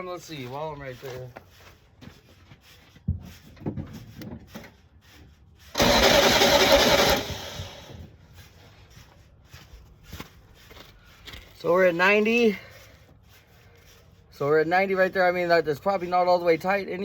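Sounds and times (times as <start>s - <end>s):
engine cranking on starter: 5.7s - 8.1s.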